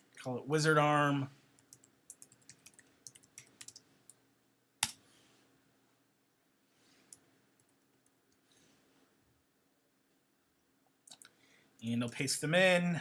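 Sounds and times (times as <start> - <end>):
computer mouse and keyboard clicks: 1.6 - 3.8.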